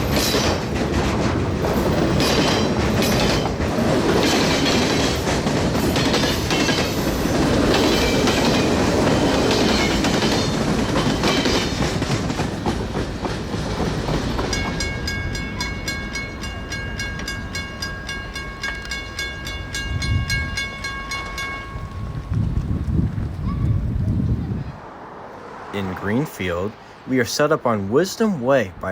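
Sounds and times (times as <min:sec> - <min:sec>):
freight train rumbling and clattering: 0:00.0 - 0:24.8
high pulsing ringing tone: 0:14.5 - 0:22.3.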